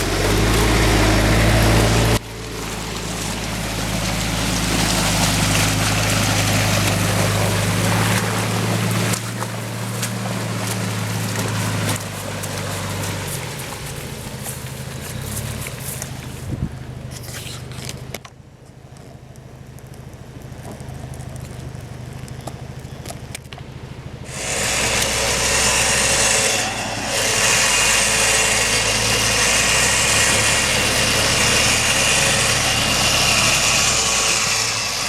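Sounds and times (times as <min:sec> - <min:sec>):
off-road vehicle engine running: 0:00.0 - 0:35.0.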